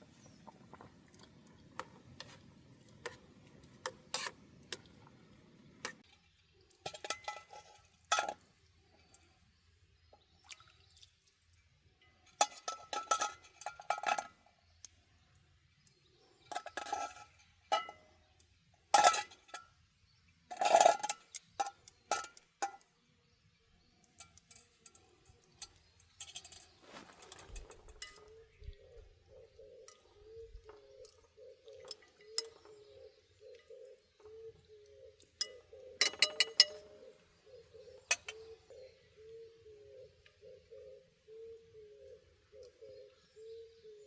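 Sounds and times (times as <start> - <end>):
dishes and utensils clinking: 6.9 - 8.4, 12.4 - 14.3, 24.2 - 28.4, 35.4 - 36.9.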